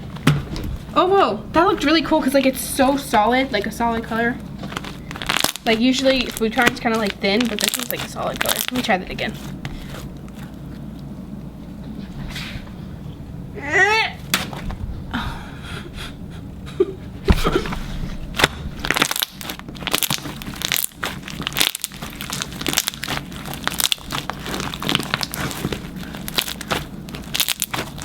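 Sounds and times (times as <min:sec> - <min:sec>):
slime crackling and popping: 0:01.8 - 0:11.0, 0:18.3 - 0:28.0.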